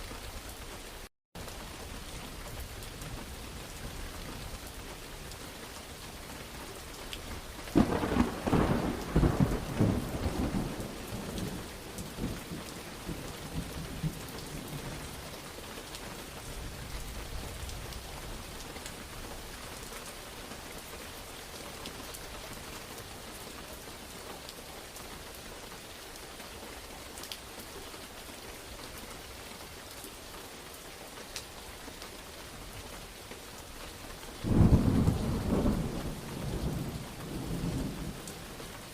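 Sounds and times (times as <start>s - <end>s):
steady rain falling: 0.0s - 38.9s
thunder crack and rumble: 7.7s - 15.1s, 34.4s - 38.5s.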